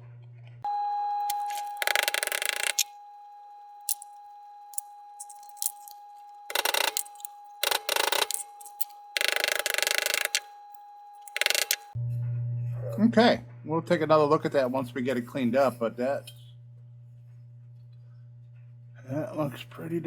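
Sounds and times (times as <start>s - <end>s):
small clicks: 1.3s - 2.9s, 5.2s - 10.5s, 11.3s - 12.0s.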